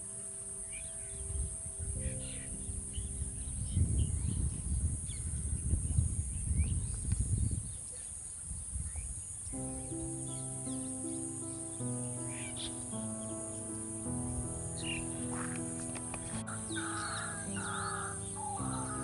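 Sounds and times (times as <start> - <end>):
soft background music: 0.0 - 5.3, 9.6 - 19.0.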